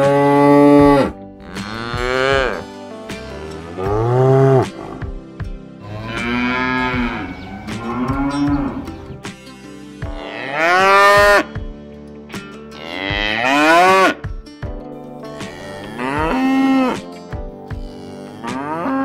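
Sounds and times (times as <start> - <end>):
cows mooing: 0.0 - 5.1, 5.8 - 9.2, 10.1 - 11.5, 12.8 - 14.2, 15.4 - 17.1, 18.0 - 19.0.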